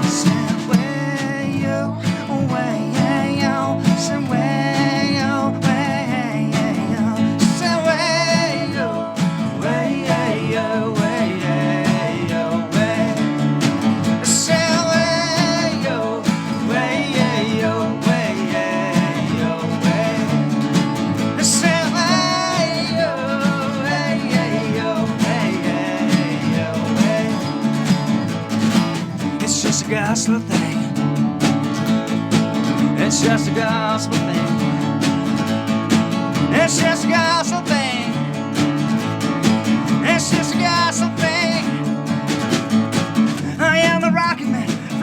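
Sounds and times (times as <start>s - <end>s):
acoustic guitar: 0.0s - 45.0s.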